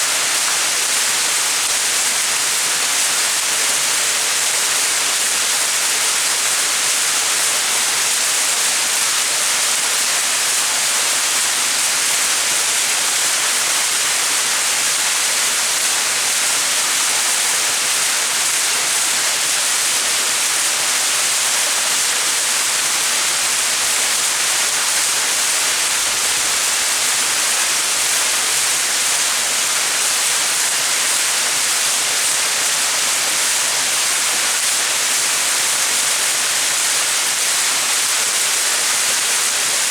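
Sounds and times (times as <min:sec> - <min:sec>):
waterfall splashing: 0:12.3 - 0:39.9.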